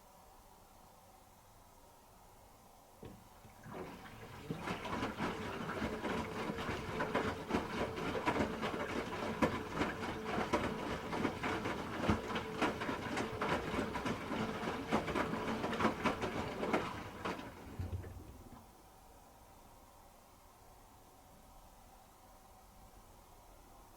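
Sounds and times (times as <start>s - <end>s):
washing machine motor whine: 3.0s - 18.7s
clatter of tumbling load: 4.5s - 18.6s.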